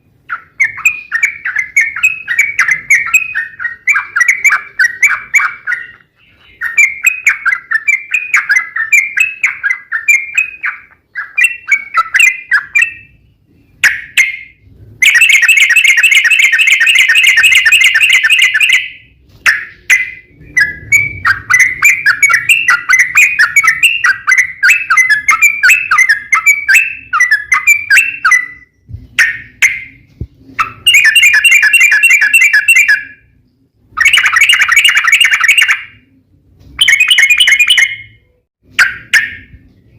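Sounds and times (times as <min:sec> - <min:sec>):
fast rolling bird trills: 0:00.1 - 0:33.3, 0:34.0 - 0:36.1, 0:36.8 - 0:39.5
bird chattering notes: 0:00.3 - 0:13.1, 0:13.8 - 0:33.1, 0:34.0 - 0:36.0, 0:36.8 - 0:38.1.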